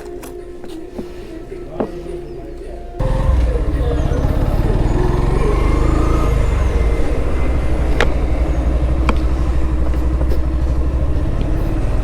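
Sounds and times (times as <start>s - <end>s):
vehicle rumble: 3.0s - 12.0s.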